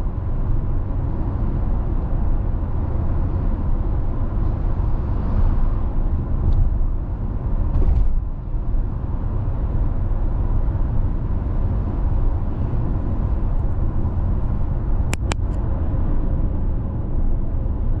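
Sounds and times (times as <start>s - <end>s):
car road and tyre noise: 0.0s - 18.0s
sharp clicks: 15.1s - 15.6s.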